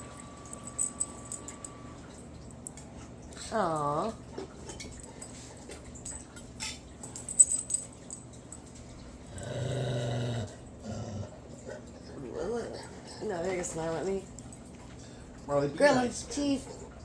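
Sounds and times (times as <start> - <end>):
dog growling: 9.3 - 13.2.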